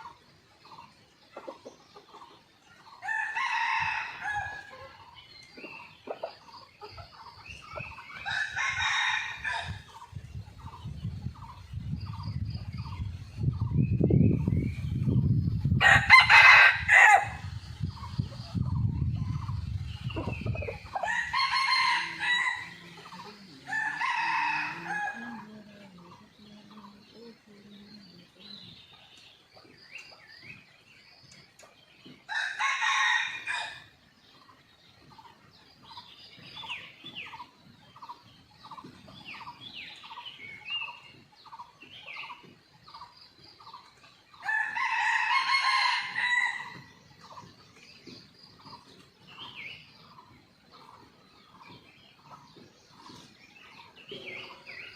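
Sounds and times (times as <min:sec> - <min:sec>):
small birds chirping: 0:00.0 - 0:54.9
roosters crowing: 0:03.0 - 0:05.0, 0:08.2 - 0:10.0, 0:15.8 - 0:17.5, 0:20.4 - 0:25.6, 0:32.2 - 0:34.0, 0:44.4 - 0:47.0.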